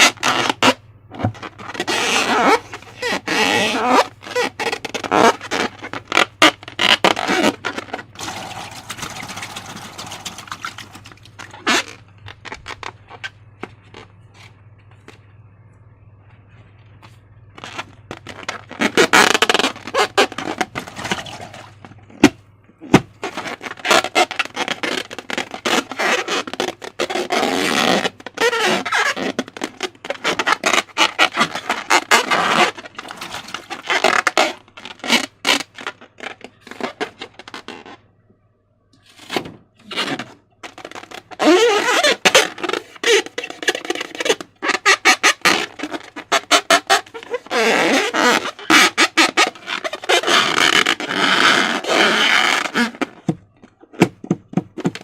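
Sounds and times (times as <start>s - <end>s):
slime squelching and crackling: 1.3s - 13.0s.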